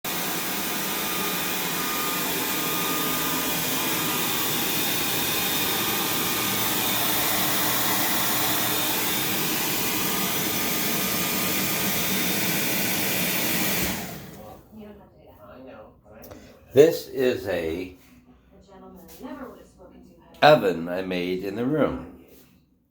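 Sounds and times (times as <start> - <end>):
hair dryer running: 0.0 - 14.6.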